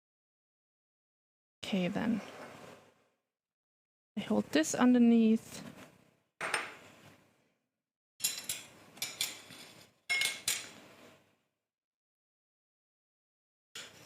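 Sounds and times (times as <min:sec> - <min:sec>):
utensils clattering against cookware: 0:08.2 - 0:10.8.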